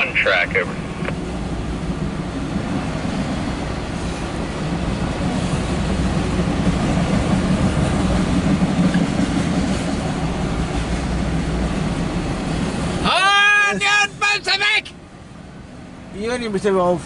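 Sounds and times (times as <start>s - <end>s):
steel wheels on rail: 0.6s - 13.1s.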